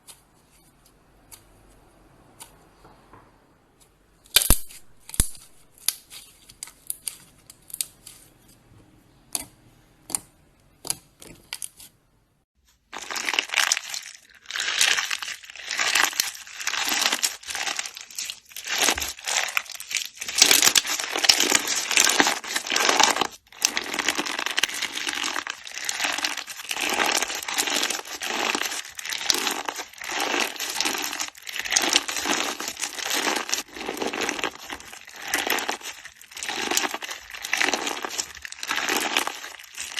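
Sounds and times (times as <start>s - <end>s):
slime crackling and popping: 12.9s - 39.9s.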